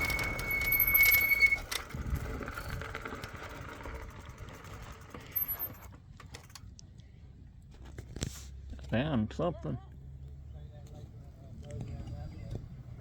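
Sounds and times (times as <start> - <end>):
bike rattling over rough ground: 0.0 - 6.8.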